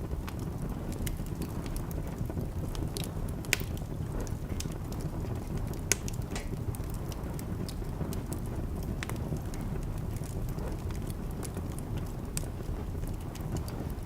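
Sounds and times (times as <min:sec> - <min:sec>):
low fire rumble: 0:00.0 - 0:14.0
sharp pops from fire: 0:00.0 - 0:14.0
wood fire crackling: 0:00.0 - 0:14.0.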